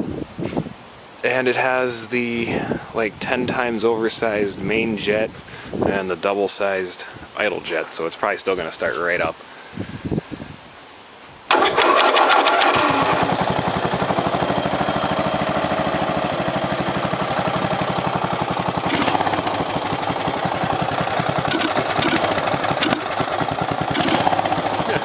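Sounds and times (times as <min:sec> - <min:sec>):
small engine starting and running: 0:11.5 - 0:25.0.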